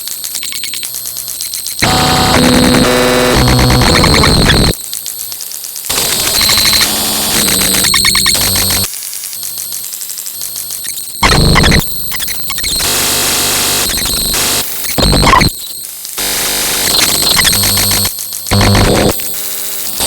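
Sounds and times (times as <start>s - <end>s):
electronic buzzing: 0.3s - 5.3s, 5.9s - 8.9s, 10.5s - 20.0s
harsh electronic noise: 1.8s - 4.8s, 5.9s - 8.9s, 11.1s - 20.0s.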